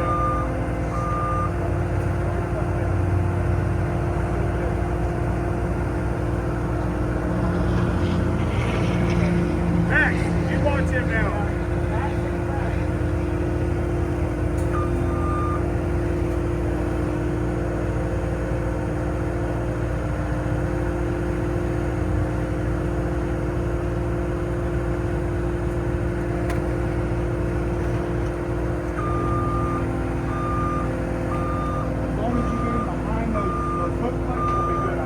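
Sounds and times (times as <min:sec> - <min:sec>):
backup alarm beeping: 0:00.0 - 0:01.5, 0:29.0 - 0:35.0
diesel engine running: 0:00.0 - 0:35.0.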